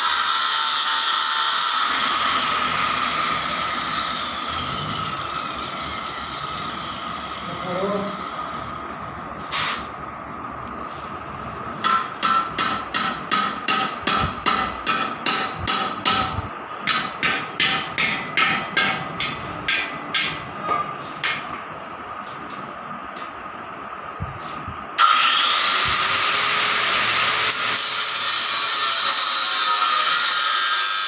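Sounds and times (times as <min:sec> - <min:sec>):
faint hum with high ringing: 0:02.1 - 0:25.0.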